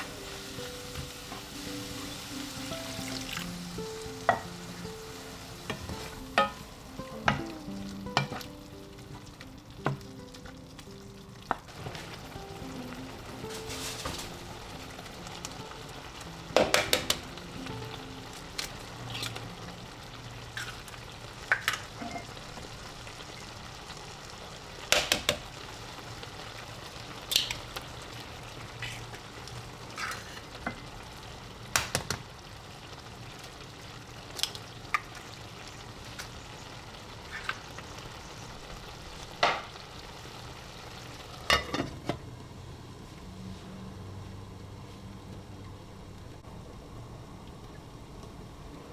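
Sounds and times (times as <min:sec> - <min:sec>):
food sizzling in a frying pan: 0:00.0 - 0:42.2
utensil knocking against pan: 0:16.6 - 0:17.3.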